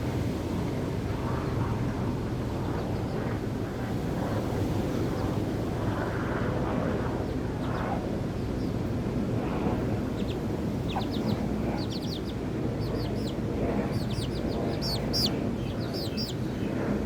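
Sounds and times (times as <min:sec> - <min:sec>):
wind rumbling on microphone: 0:04.0 - 0:17.0.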